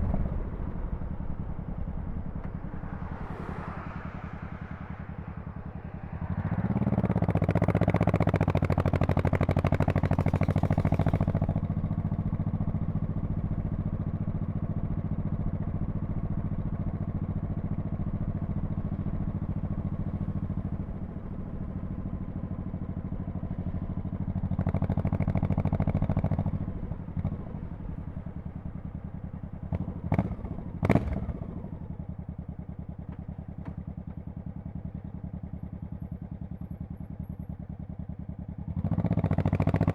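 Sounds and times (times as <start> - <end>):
motorcycle engine revving: 0.0 - 16.8, 23.0 - 32.2, 38.3 - 39.9.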